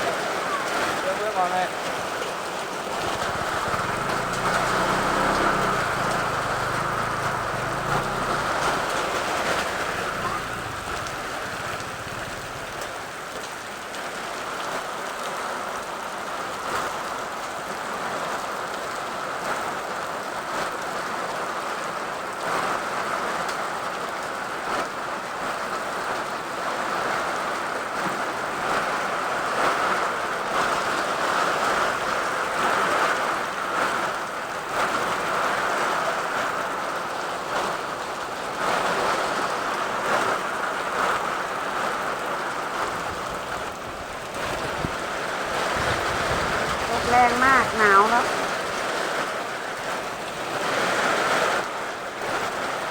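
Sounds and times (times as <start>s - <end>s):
heavy rain: 0.0s - 52.9s
hailstones hitting: 0.2s - 13.8s.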